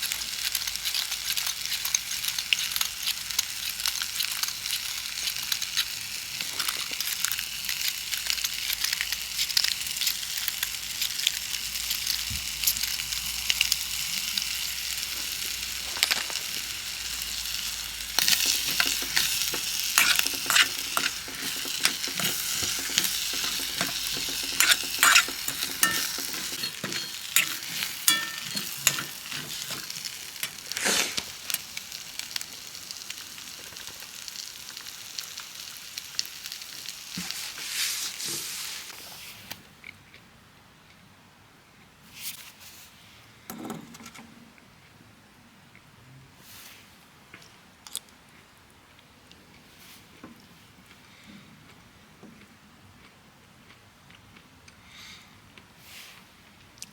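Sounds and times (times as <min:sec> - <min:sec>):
campfire crackling and popping: 0:00.0 - 0:35.5.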